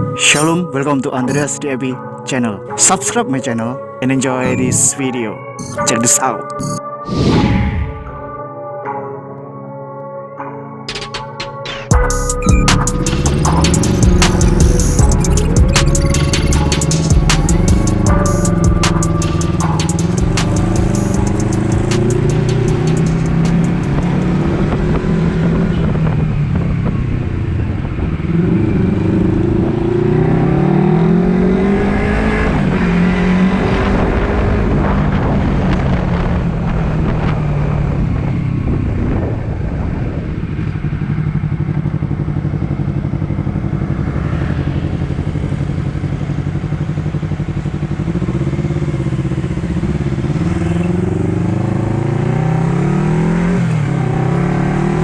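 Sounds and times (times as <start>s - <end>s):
motorcycle engine accelerating: 11.2s - 55.0s.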